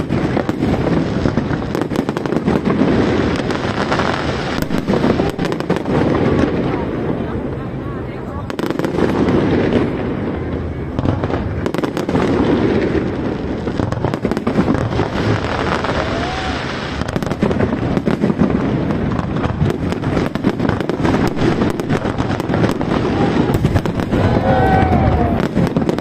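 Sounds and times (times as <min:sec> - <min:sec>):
fireworks booming: 0:00.0 - 0:26.0
fireworks crackling and popping: 0:00.0 - 0:26.0.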